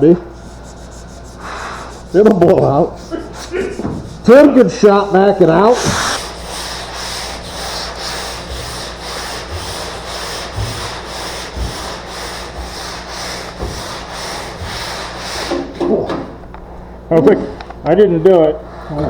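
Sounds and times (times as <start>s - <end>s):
sandpaper rubbing on body filler: 0.4s - 15.6s.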